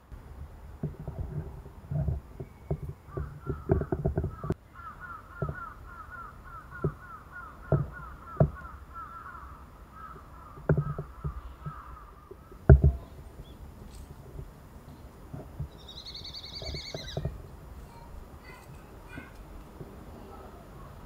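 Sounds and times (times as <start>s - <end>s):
bird calling repeated notes: 2.4s - 13.7s, 15.7s - 19.4s.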